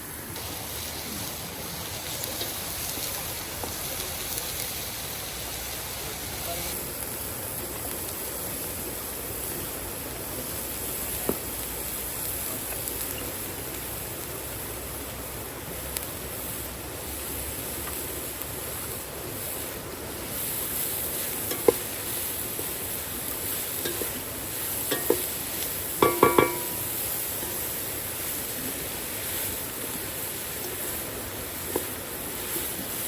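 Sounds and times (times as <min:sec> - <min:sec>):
cooking hiss: 0:00.0 - 0:33.0
utensil clinking against pot: 0:21.4 - 0:21.8, 0:23.8 - 0:24.2, 0:24.8 - 0:25.4, 0:26.0 - 0:27.6.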